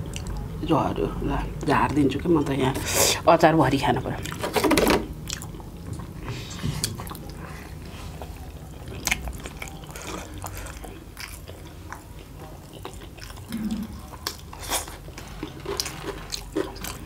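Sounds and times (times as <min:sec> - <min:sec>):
people chewing soft food: 0:05.2 - 0:17.0.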